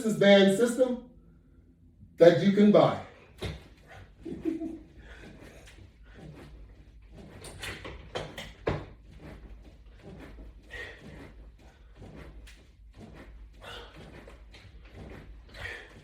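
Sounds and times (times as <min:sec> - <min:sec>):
steady low hum: 0:00.0 - 0:16.0
knocks and clatter: 0:03.3 - 0:16.0.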